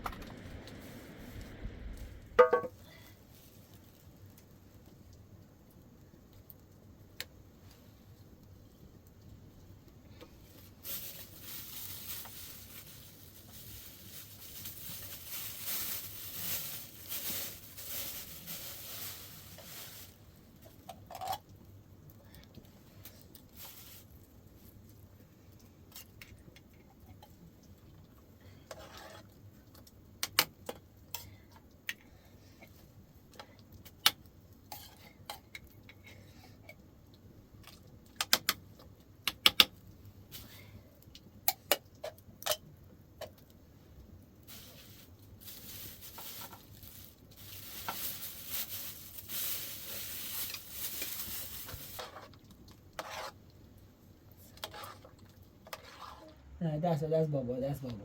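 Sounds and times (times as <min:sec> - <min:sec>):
steady hiss: 0:00.0 - 0:05.3, 0:10.0 - 0:20.8, 0:43.7 - 0:52.2
pots and dishes clinking: 0:02.4 - 0:02.8.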